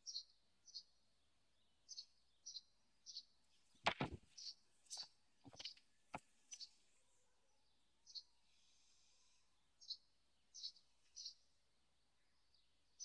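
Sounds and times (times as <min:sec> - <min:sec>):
small bird chirping: 0:00.0 - 0:06.8, 0:07.6 - 0:11.5
sharp knocks: 0:03.8 - 0:04.2.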